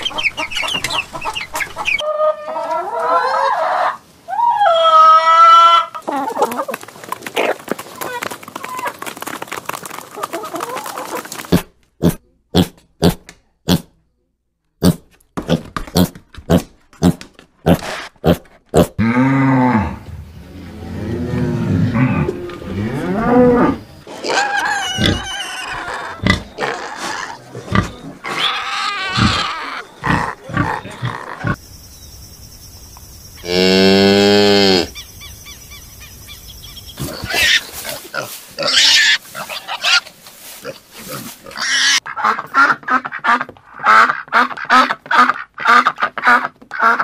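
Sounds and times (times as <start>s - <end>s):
pigs squealing and grunting: 20.9s - 31.6s, 37.0s - 42.0s
ducks quacking rapidly: 41.6s - 47.0s.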